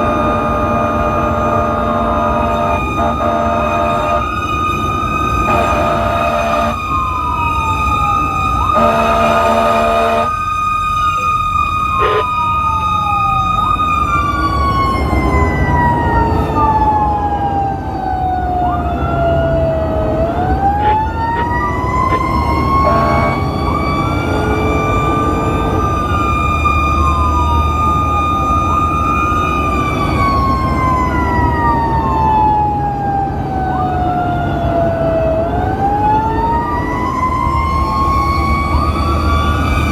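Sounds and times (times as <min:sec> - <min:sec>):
horn blast: 0:00.0 - 0:04.2, 0:05.4 - 0:06.8, 0:08.7 - 0:10.3, 0:22.8 - 0:23.4
fire engine siren winding: 0:00.0 - 0:39.9
sweeping siren wails: 0:00.0 - 0:39.9.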